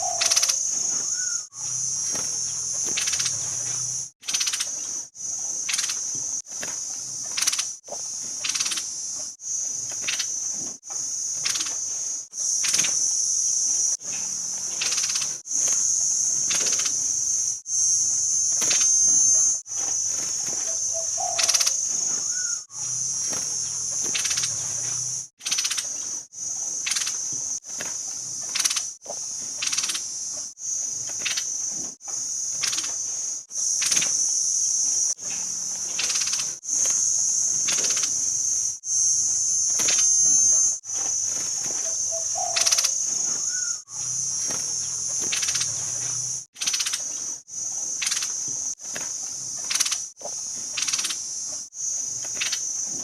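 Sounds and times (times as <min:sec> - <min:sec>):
songbird sharp calls: 0:00.0 - 0:04.8, 0:08.4 - 0:08.9, 0:18.4 - 0:26.1, 0:29.6 - 0:30.1, 0:35.9 - 0:47.2, 0:50.8 - 0:51.2
high-pitched insect-like buzz: 0:00.0 - 0:53.0.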